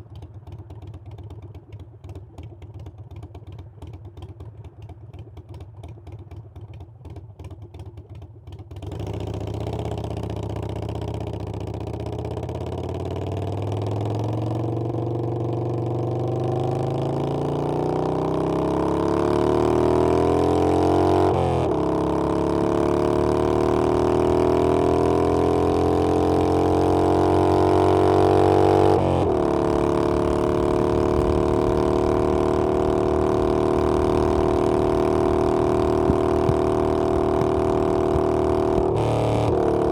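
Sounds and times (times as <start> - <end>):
motorcycle engine accelerating: 8.8 - 39.9.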